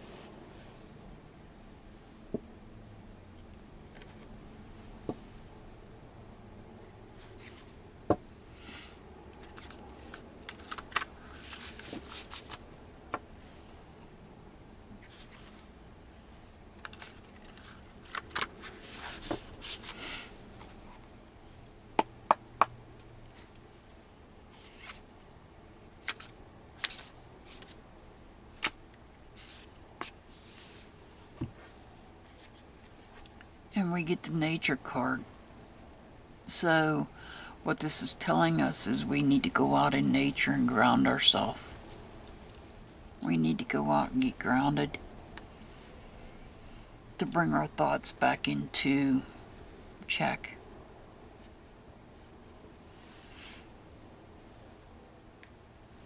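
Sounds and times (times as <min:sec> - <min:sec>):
cards rustling and swishing: 0:08.7 - 0:12.7, 0:15.0 - 0:15.7, 0:16.8 - 0:20.8, 0:24.5 - 0:25.1, 0:26.0 - 0:27.8, 0:28.6 - 0:31.6.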